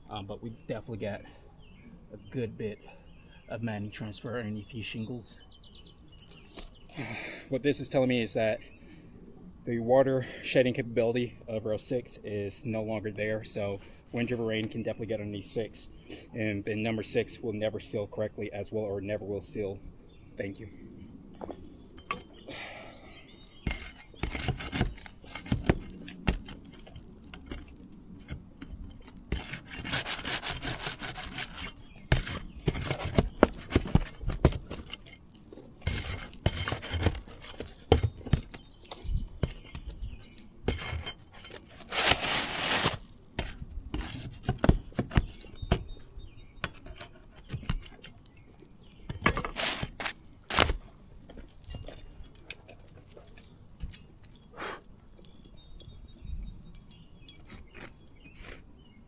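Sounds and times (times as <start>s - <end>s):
roof shingles scraping and rasping: 23.6s - 39.9s, 40.6s - 45.7s, 49.2s - 50.8s.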